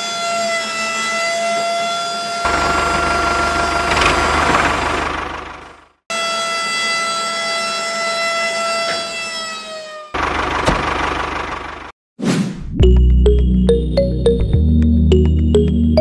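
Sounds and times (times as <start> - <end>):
engine running with low hum: 2.4 - 6.0, 10.2 - 11.9.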